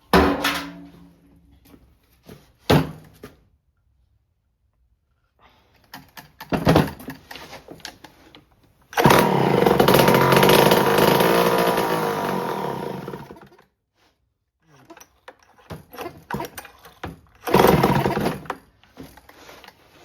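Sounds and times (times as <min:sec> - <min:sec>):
chainsaw starter cord pulls: 0:08.9 - 0:13.6, 0:14.8 - 0:19.4
chainsaw engine running: 0:09.0 - 0:13.5, 0:17.5 - 0:18.5.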